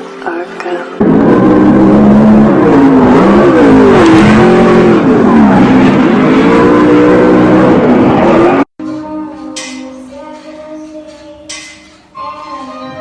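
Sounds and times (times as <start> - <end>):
engine revving loudly: 1.0 - 8.7.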